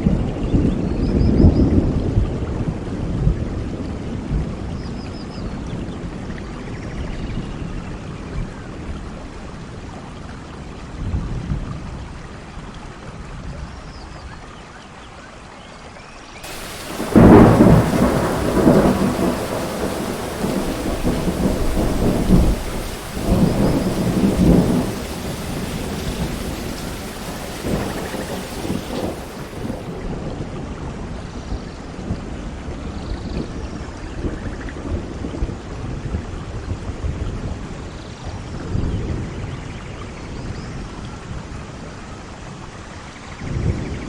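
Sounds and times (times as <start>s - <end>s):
thunder crack and rumbles: 16.4s - 30.1s
steady rain: 16.4s - 30.2s.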